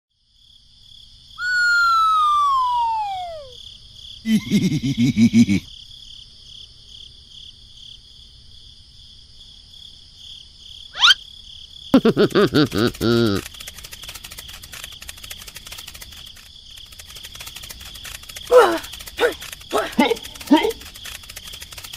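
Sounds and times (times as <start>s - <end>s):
crickets chirping: 0.2s - 21.9s
cartoon falling whistle: 1.4s - 3.6s, 11.0s - 11.2s
quick rising whistle: 1.4s - 3.6s, 11.0s - 11.2s
rapid choppy pulses: 12.2s - 21.9s.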